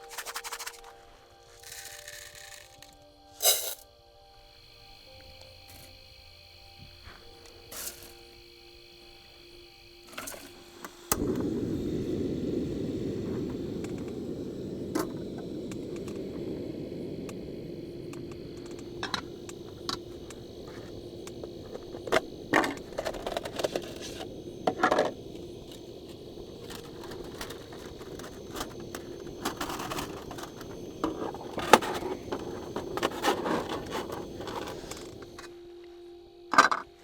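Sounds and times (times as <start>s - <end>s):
steady low hum: 0.0s - 37.0s
small hard objects clicking: 1.6s - 3.8s.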